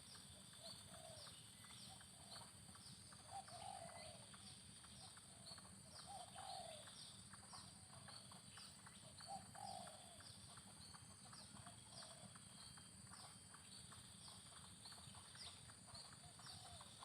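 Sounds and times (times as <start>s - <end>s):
dove cooing: 0.6s - 1.3s, 3.2s - 4.3s, 5.3s - 6.9s, 9.1s - 10.3s, 11.6s - 12.4s, 16.0s - 17.0s.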